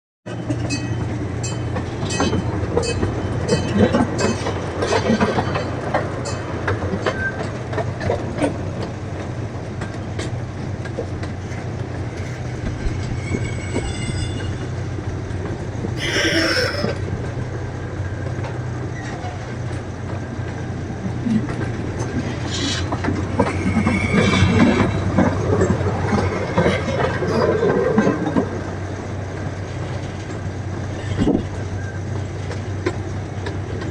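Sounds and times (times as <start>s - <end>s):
train running on track: 0.3s - 33.9s
wheels clicking over rail joints: 0.3s - 33.9s
high wheel squeals: 13.0s - 14.8s, 16.0s - 17.0s, 26.1s - 27.7s.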